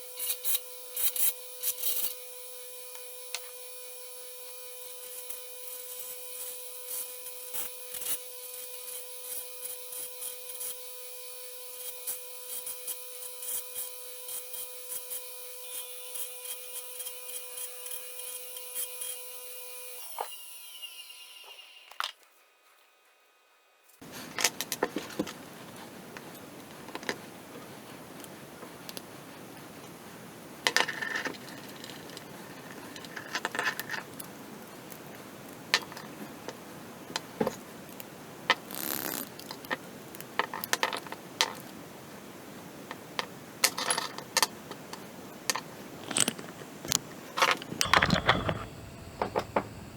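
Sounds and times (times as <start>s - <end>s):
whirring with regular ticks: 11.7s - 19.3s, 31.8s - 37.3s.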